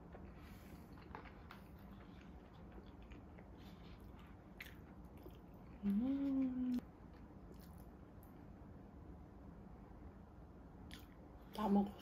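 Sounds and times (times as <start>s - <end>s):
person chewing: 0.0s - 8.3s
hummed mm: 5.7s - 6.8s.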